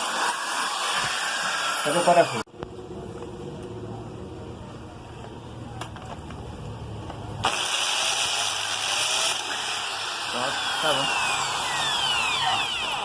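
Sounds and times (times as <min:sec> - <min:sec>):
electric drill cutting metal: 0:00.0 - 0:02.5, 0:07.4 - 0:13.0.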